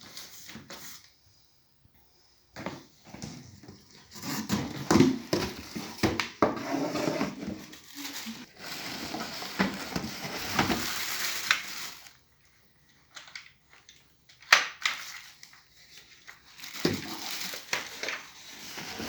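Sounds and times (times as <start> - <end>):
packaging rustling and crackling: 4.2 - 12.2, 13.1 - 19.0.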